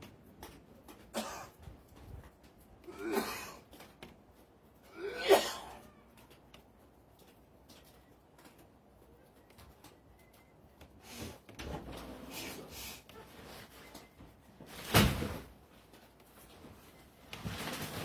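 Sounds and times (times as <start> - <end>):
shuffling noises: 0.0 - 5.0, 5.6 - 18.0
person coughing: 1.1 - 1.6, 2.9 - 3.6, 4.9 - 5.8.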